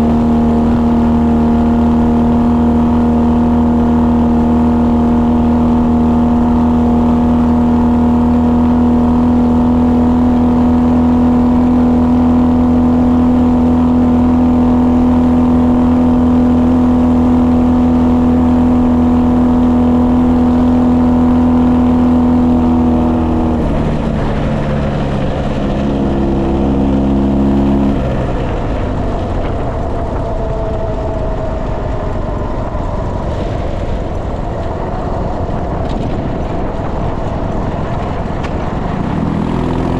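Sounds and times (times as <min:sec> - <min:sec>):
motorcycle engine running: 0:00.0 - 0:39.9
rushing wind and road noise: 0:00.0 - 0:39.9.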